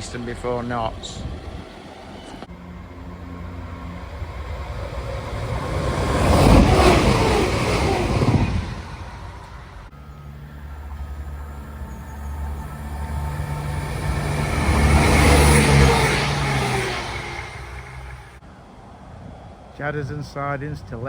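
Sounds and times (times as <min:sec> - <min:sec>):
diesel train passing: 0:00.0 - 0:21.0.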